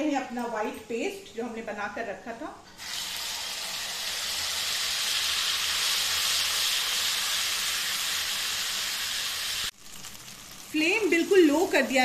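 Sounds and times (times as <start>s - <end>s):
paste sizzling in hot oil: 2.8s - 12.0s.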